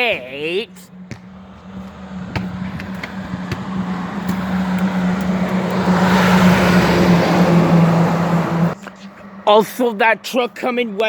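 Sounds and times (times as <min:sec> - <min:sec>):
tyre noise: 0:00.0 - 0:07.6
diesel truck engine hum: 0:00.0 - 0:11.0.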